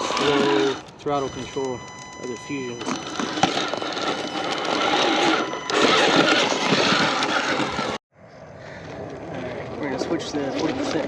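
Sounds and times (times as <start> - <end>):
toy car electric motor and gears: 0.0 - 8.0.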